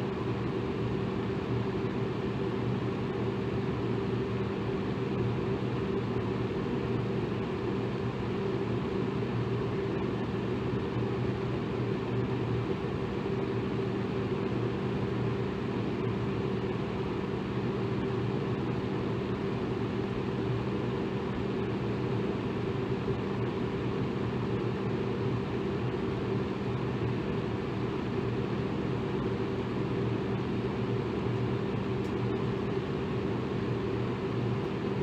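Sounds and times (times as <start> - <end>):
electric fan air rush: 0.0 - 35.0.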